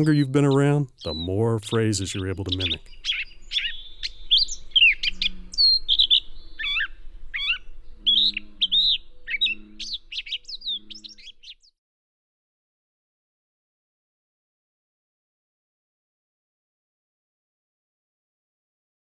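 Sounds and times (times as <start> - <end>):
bird singing warbling phrases: 0.0 - 11.8.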